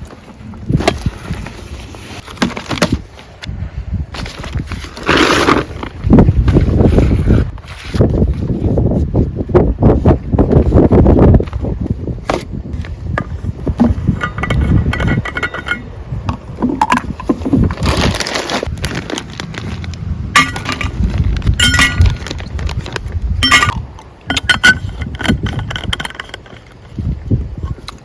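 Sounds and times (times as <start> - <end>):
cookware and utensils clinking: 14.2 - 15.8, 20.4 - 20.9, 21.6 - 22.1, 23.4 - 26.4.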